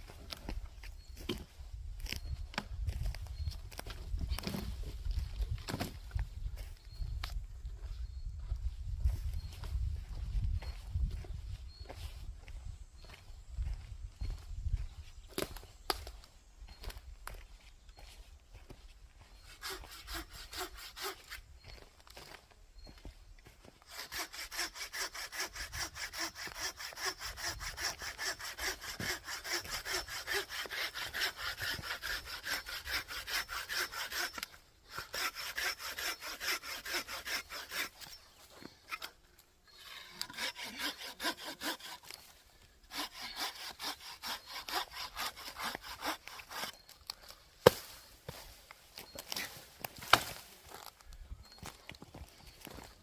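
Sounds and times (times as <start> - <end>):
hand saw cutting wood: 19.4 - 21.4, 23.8 - 38.2, 39.7 - 42.3, 42.9 - 46.9.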